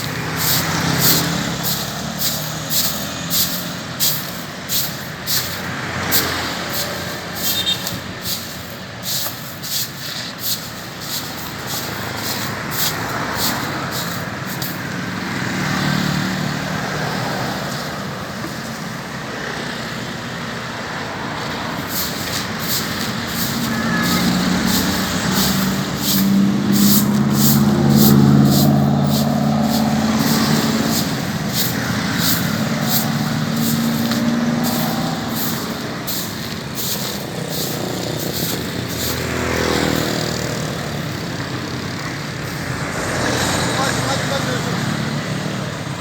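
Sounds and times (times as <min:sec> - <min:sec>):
broom sweeping sand: 0:00.0 - 0:16.1, 0:21.7 - 0:41.2
vehicle engine passing: 0:00.0 - 0:18.8, 0:20.8 - 0:46.0.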